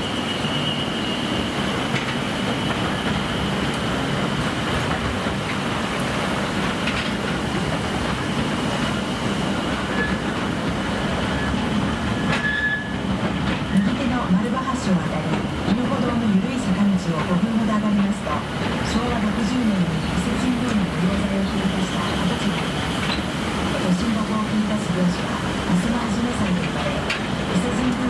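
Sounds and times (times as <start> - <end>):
high wheel squeal: 0.0 - 2.0, 9.9 - 10.2, 12.2 - 13.0
train wheels rumbling on rail: 0.0 - 28.0.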